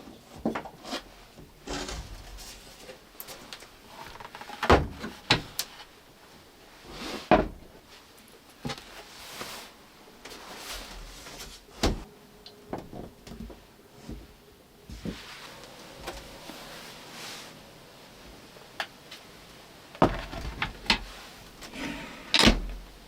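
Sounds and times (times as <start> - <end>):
soft rubbing and rustling: 5.7 - 11.8, 12.9 - 19.6.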